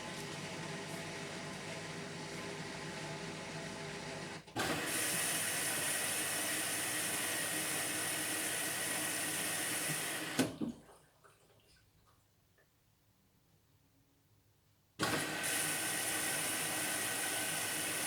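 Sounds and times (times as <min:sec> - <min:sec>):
water rushing into washing machine: 0:00.0 - 0:11.7, 0:15.0 - 0:18.0.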